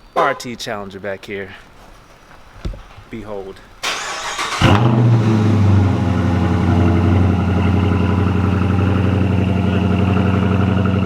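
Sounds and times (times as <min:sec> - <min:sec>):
car engine idling: 0:00.0 - 0:11.0
starter cranking: 0:03.8 - 0:05.8.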